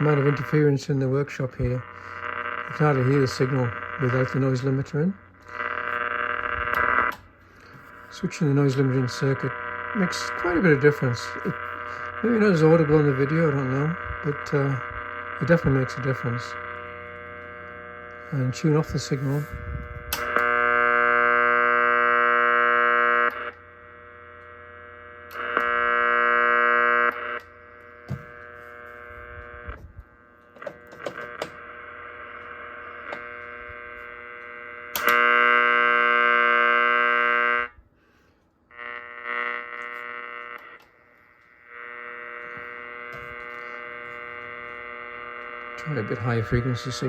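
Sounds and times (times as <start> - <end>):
harsh buzzing radio interference: 0.0 - 37.8, 38.6 - 47.0
hiss and hum: 0.0 - 47.0
scattered clicks: 30.5 - 31.6, 34.4 - 35.2.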